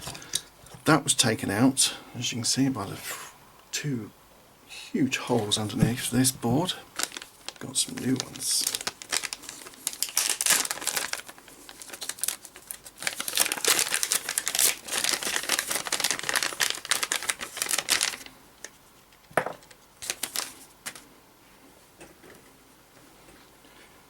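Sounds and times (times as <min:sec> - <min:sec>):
plastic packaging crinkling: 0:05.3 - 0:18.8, 0:19.8 - 0:21.0.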